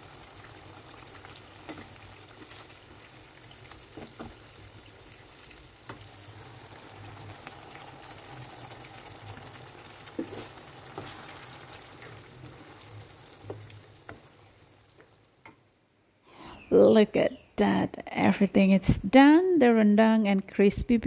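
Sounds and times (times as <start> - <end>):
sauce sizzling in a pan: 0.0 - 15.8
spatula scraping and knocking pan: 10.2 - 12.6.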